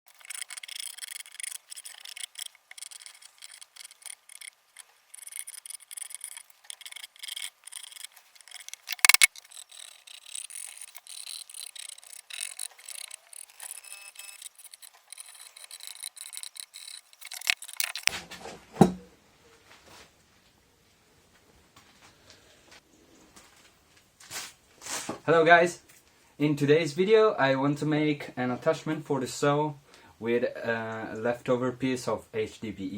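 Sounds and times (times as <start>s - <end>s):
scraping and rasping: 0.0s - 18.2s.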